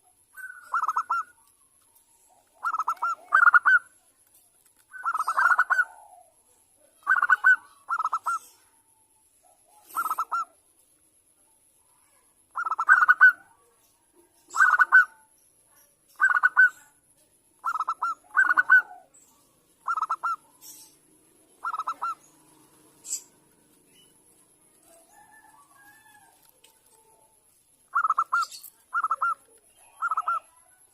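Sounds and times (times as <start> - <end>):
dove cooing: 0.0 - 1.6, 2.2 - 3.9, 4.9 - 8.6, 9.7 - 10.6, 12.5 - 13.6, 14.5 - 15.3, 16.2 - 16.8, 17.6 - 19.2, 19.8 - 30.9.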